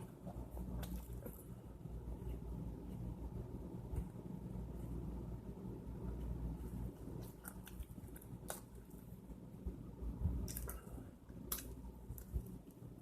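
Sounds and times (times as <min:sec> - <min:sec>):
low steady hum: 0:00.0 - 0:13.0
person chewing food: 0:07.1 - 0:09.0, 0:10.4 - 0:12.6.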